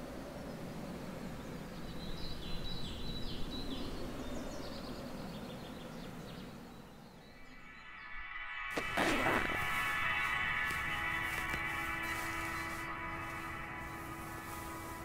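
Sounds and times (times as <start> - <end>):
steady background hiss: 0.0 - 7.7, 8.7 - 15.0
bird chirping: 1.3 - 8.2.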